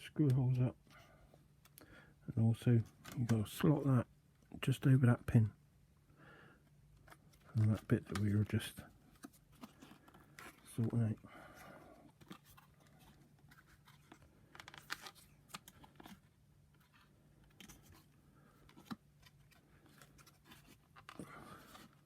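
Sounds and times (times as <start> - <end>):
plastic parts clicking and scraping: 6.9 - 11.2, 11.9 - 22.0.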